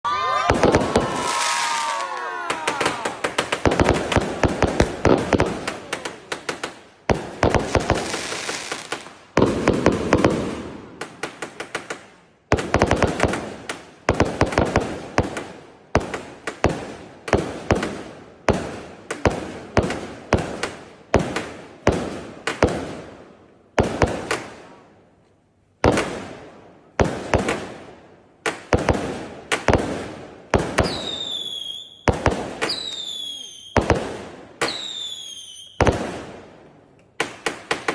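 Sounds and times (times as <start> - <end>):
firecrackers banging: 0.3 - 12.0.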